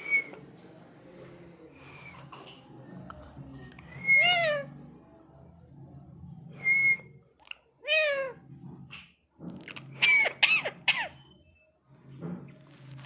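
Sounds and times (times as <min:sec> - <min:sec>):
parakeet calling: 0:09.8 - 0:11.4.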